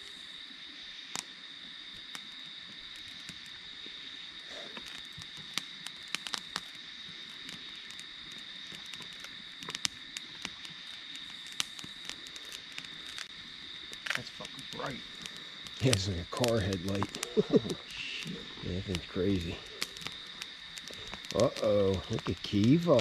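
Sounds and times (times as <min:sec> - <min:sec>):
insect chorus: 0:00.0 - 0:23.0
sharp clicks and snaps: 0:07.4 - 0:13.3, 0:13.9 - 0:23.0.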